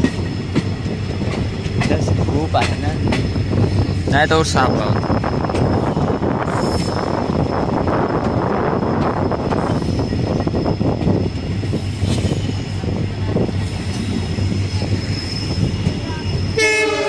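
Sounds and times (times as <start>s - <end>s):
train wheels rumbling on rails: 0.0s - 17.0s
train horn blast: 16.6s - 17.0s.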